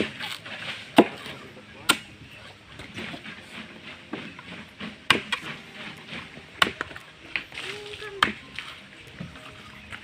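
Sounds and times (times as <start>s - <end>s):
chopping strikes on coconut husk: 0.0s - 2.1s, 4.1s - 7.4s, 8.2s - 8.4s.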